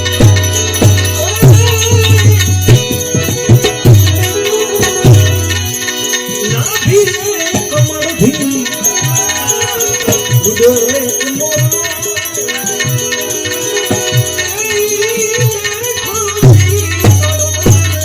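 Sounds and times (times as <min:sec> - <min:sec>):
hand drum beat: 0:00.0 - 0:05.6, 0:15.2 - 0:18.0
devotional instrumental melody: 0:00.0 - 0:18.0
rattling percussion: 0:00.0 - 0:18.0.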